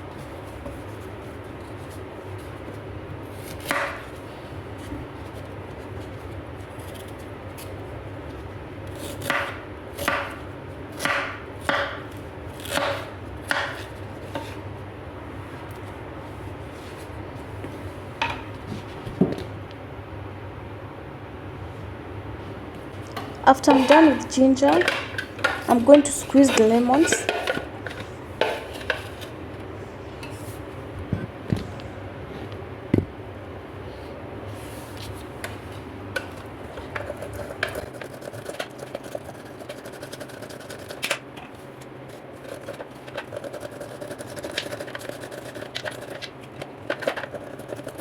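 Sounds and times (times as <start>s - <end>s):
knife chopping ginger: 8.9s - 14.6s, 42.4s - 48.0s
utensils and dishes knocking: 23.6s - 27.6s.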